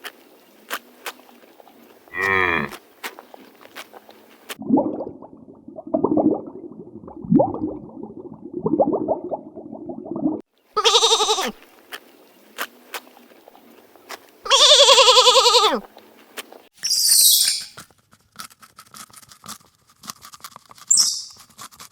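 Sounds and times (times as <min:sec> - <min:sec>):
long quavering animal calls: 0:02.1 - 0:02.8, 0:10.8 - 0:11.6, 0:14.5 - 0:15.8.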